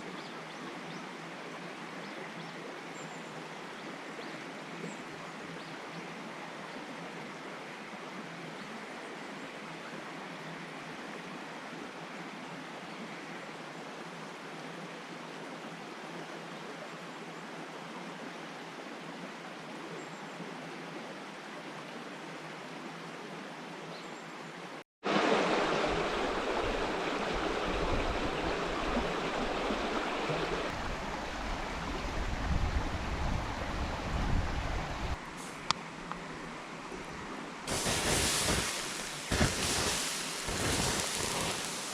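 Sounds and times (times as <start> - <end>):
river rushing: 25.0 - 34.0, 34.6 - 41.9.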